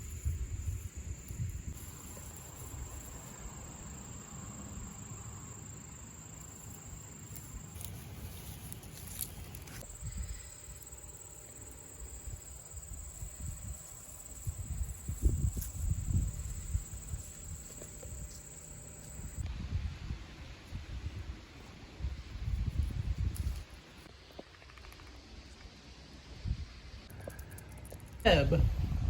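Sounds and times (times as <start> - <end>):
insects trilling: 0.0 - 19.5
low rumble on microphone: 28.4 - 29.0.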